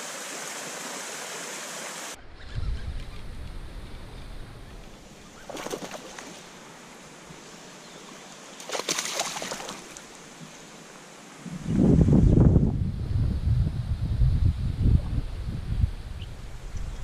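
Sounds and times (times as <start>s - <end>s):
faint rush of running water: 0.0s - 2.2s, 4.6s - 12.1s
water splashing and trickling: 4.7s - 7.0s, 8.2s - 10.9s.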